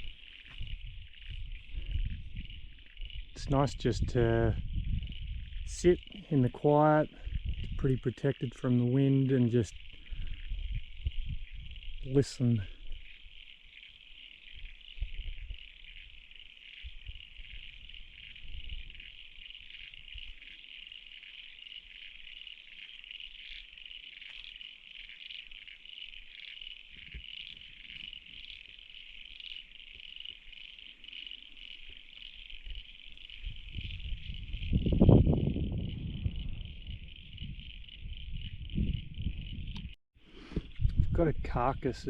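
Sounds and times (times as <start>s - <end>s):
wind rumble on microphone: 0.0s - 13.1s, 14.6s - 16.2s, 16.8s - 20.5s, 32.5s - 42.0s
chorus of calling frogs: 0.0s - 40.0s.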